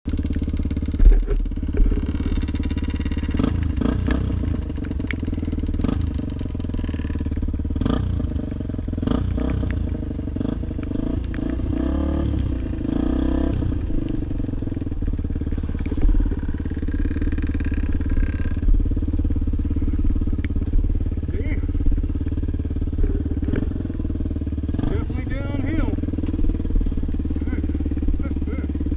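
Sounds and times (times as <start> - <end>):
engine running steadily: 0.1 - 28.9.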